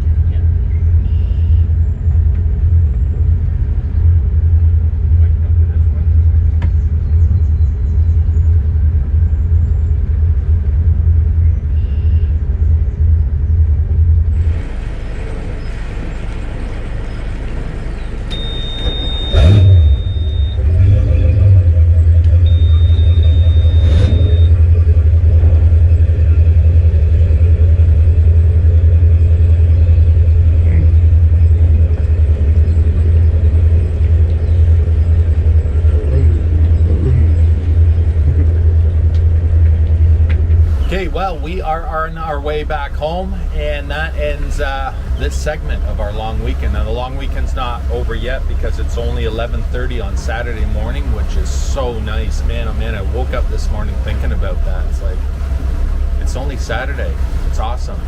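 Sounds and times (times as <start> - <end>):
boat engine rumbling: 0.0 - 58.0
short high beeps: 18.3 - 20.6, 22.4 - 24.6.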